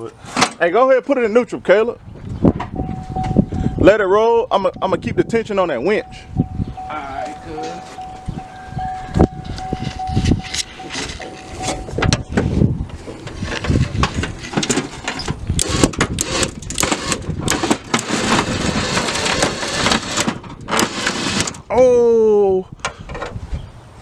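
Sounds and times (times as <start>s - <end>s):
rough rushing noise: 4.9s - 21.7s
thin steady whine: 5.6s - 15.7s
knocks clanks and rattles: 7.6s - 21.6s.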